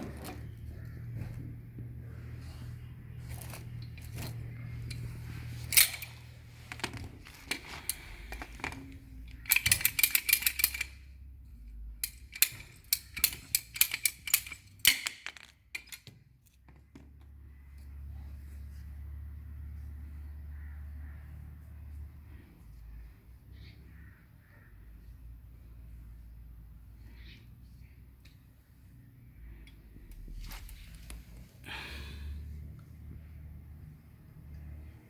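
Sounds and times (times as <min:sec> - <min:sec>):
low steady hum: 0:00.0 - 0:35.0
plastic pipe fittings clicking: 0:05.7 - 0:11.2, 0:11.9 - 0:17.9.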